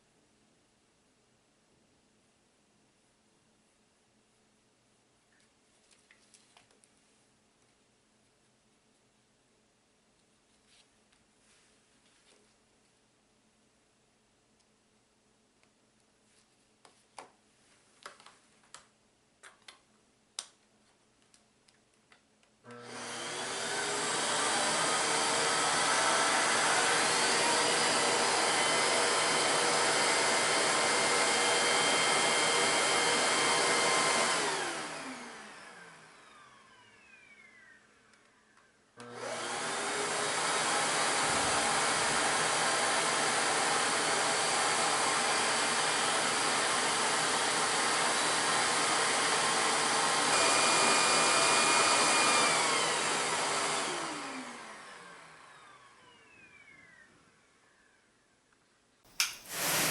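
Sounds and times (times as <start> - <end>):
vacuum cleaner running: 22.7 - 38.2, 39.0 - 57.9, 59.1 - 59.9
vacuum motor winding down: 22.7 - 38.4, 39.0 - 58.0, 59.2 - 59.9.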